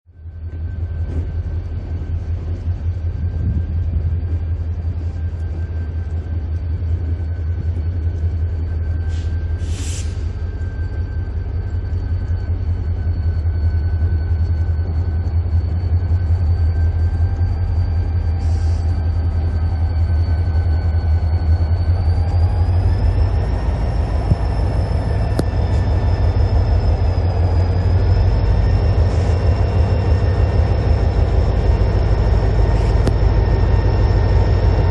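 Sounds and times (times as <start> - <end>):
diesel locomotive rumble and whine: 0.0 - 34.9
brief hiss: 9.1 - 10.2.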